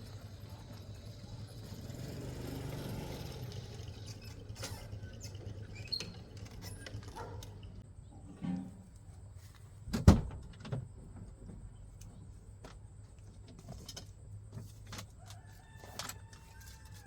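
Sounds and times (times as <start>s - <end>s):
vehicle engine humming: 0.0s - 7.8s.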